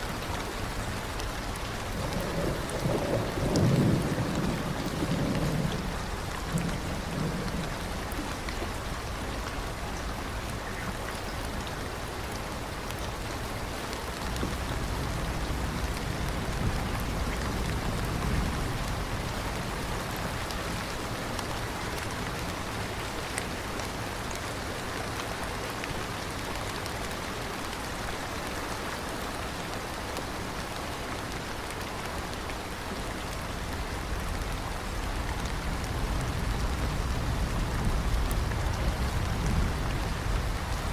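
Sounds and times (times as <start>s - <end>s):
steady rain falling: 0.0s - 40.9s
low thunder rumble: 1.0s - 10.3s, 14.0s - 21.2s, 33.4s - 40.9s.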